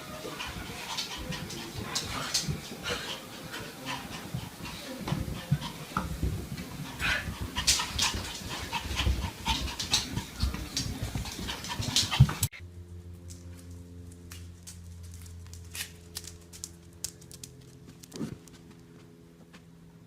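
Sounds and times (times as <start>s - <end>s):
dog panting: 0.0s - 12.6s.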